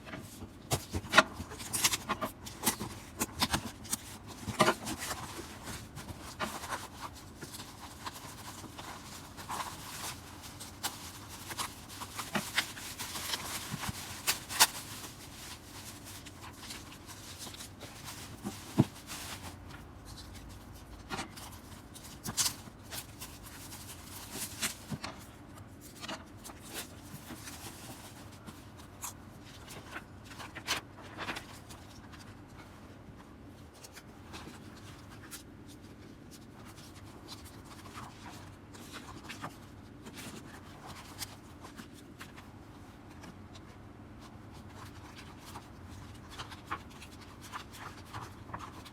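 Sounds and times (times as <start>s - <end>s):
paper and card rustling: 0.0s - 48.9s.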